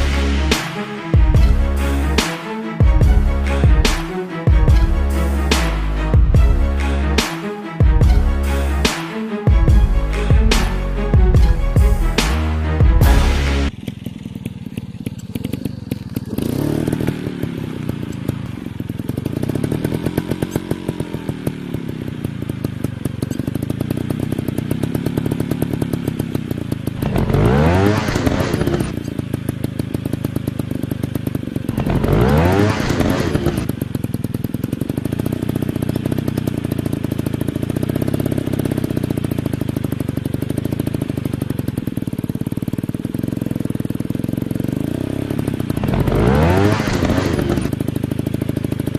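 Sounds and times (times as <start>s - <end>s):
dirt bike engines revving: 0.0s - 21.9s, 27.0s - 29.1s, 31.6s - 33.7s, 44.6s - 47.8s.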